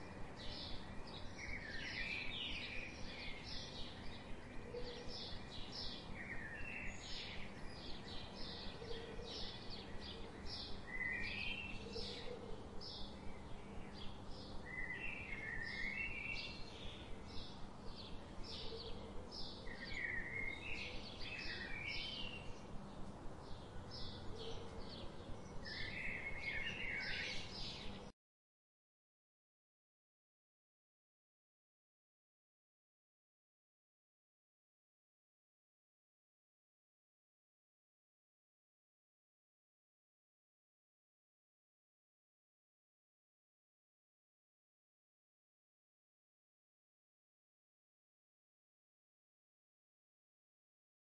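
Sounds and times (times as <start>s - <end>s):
birds chirping: 0.0s - 28.1s
low steady hum: 0.0s - 28.1s.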